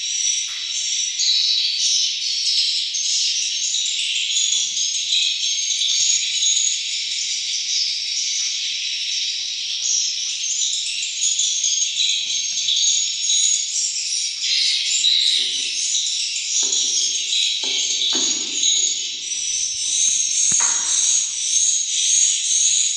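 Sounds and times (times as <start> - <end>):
swiftlet colony chirping: 6.0 - 22.9.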